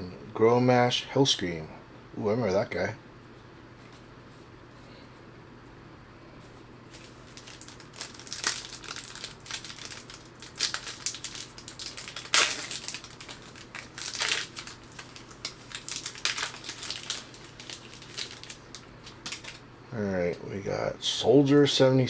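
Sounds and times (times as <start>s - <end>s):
card pack wrapper crinkling and tearing: 6.9s - 19.6s.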